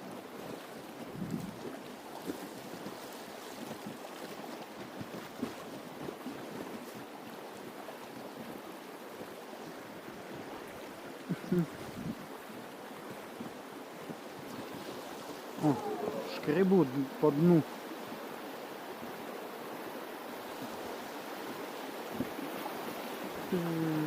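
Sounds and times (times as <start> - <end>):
river water flowing: 0.0 - 24.0
wind noise on microphone: 1.0 - 1.7, 11.5 - 12.3.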